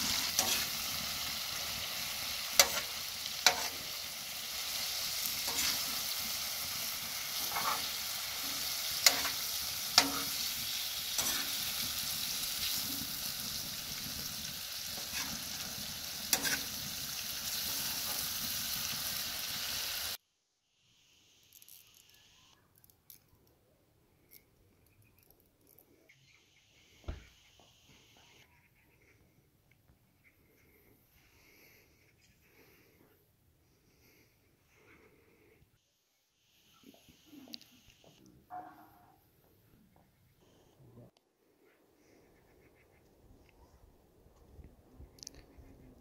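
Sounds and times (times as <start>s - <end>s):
food sizzling in pan: 0.0s - 20.2s.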